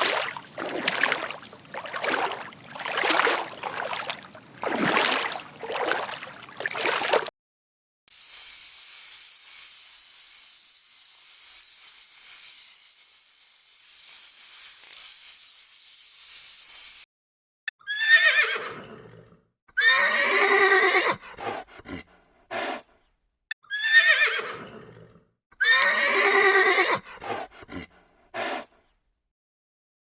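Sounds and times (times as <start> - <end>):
high hissing jingle: 8.1 - 17.0
horse whinnying: 17.9 - 21.2, 23.7 - 27.1.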